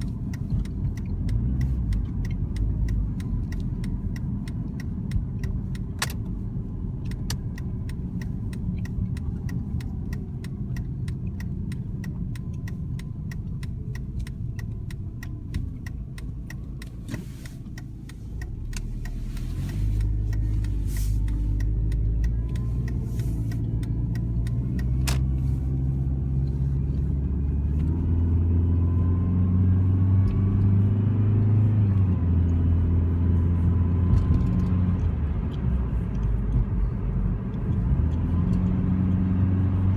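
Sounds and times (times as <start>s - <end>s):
fast regular ticking: 0.0s - 27.1s
car engine running: 0.0s - 39.9s
faint engine whine: 0.0s - 39.9s.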